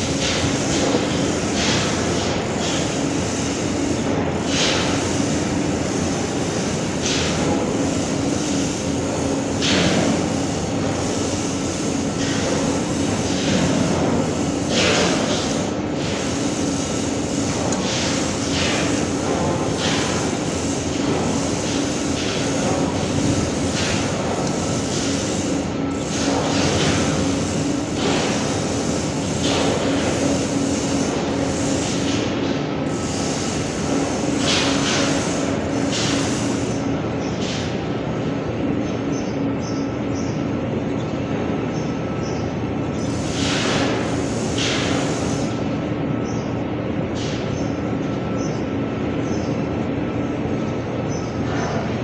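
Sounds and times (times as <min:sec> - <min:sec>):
machine hissing: 0:00.0 - 0:36.9, 0:43.0 - 0:45.7.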